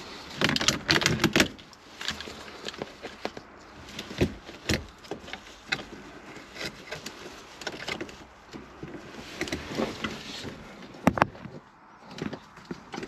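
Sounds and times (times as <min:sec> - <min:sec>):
shifter cable clicks and knocks: 0:00.0 - 0:13.0.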